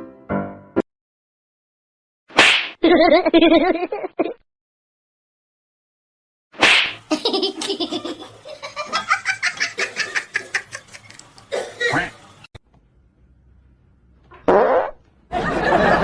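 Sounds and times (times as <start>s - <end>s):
person laughing hard: 2.8s - 4.4s, 7.1s - 11.2s.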